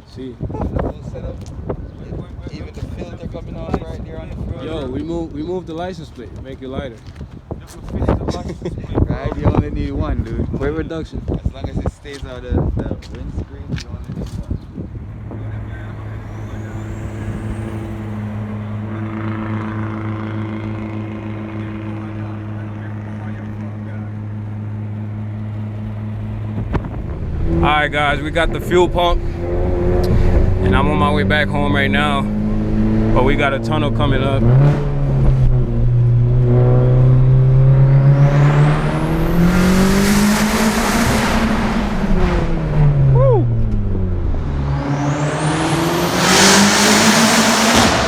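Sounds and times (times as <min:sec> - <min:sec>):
car engine humming: 0:13.2 - 0:48.0
faint high whine: 0:14.9 - 0:22.8.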